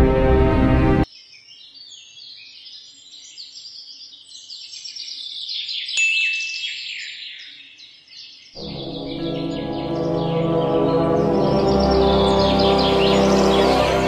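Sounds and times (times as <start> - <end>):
birds chirping: 1.0 - 14.0.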